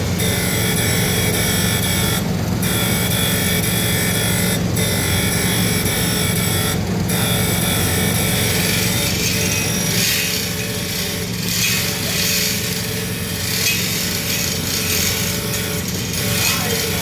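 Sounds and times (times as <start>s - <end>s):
motor hum: 0.0s - 17.0s
surface grinder grinding hiss: 7.2s - 17.0s.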